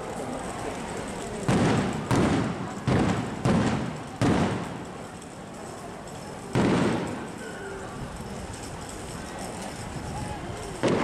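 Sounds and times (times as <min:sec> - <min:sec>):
fireworks booming: 0:01.4 - 0:05.0, 0:06.5 - 0:07.4, 0:10.8 - 0:11.0.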